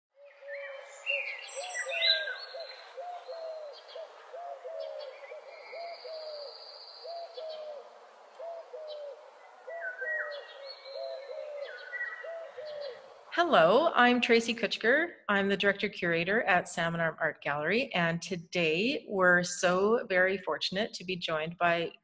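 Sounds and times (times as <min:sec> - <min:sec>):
high bird chirps and trills: 0:00.2 - 0:13.3.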